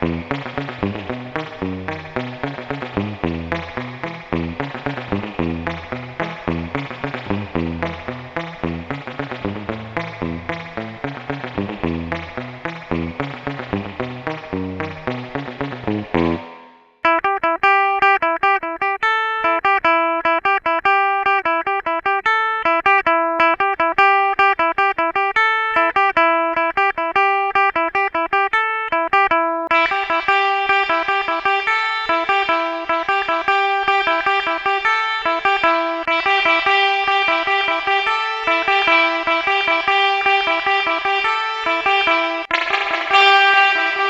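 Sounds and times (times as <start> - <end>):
electric guitar lick with reverb: 0.0 - 18.2, 29.1 - 44.0.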